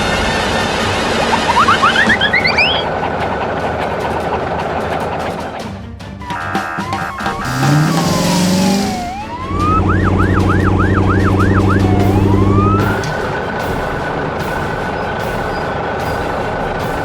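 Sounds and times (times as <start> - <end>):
cartoon siren wailing and yelping: 1.4 - 2.9, 6.3 - 13.0
vehicle engine humming: 7.3 - 13.4.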